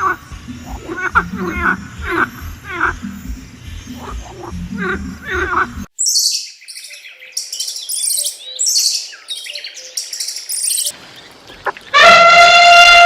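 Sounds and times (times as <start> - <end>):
small birds chirping: 0.0 - 12.0
horn blast: 12.0 - 13.0.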